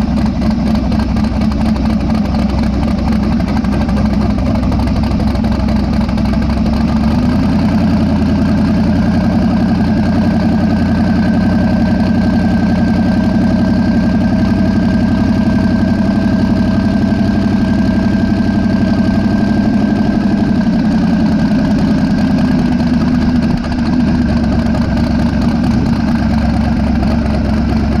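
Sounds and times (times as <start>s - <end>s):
pickup engine running: 0.0s - 28.0s.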